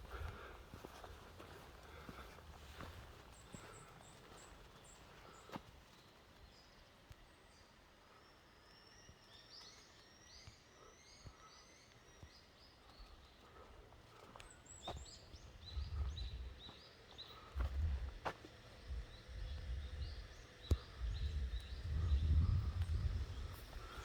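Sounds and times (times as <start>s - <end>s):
birds chirping: 0.0s - 24.0s
low rumbling gusts: 15.4s - 16.7s, 18.8s - 24.0s.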